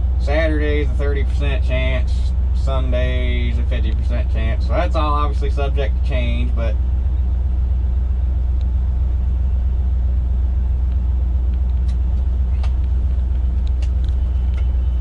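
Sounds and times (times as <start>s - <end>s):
combine engine rumble: 0.0s - 15.0s.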